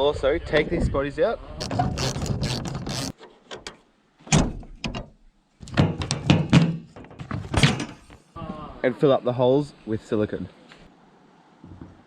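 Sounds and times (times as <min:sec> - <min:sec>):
noisy scraping: 0:01.6 - 0:03.2
hard objects knocking and clunking: 0:04.8 - 0:08.2.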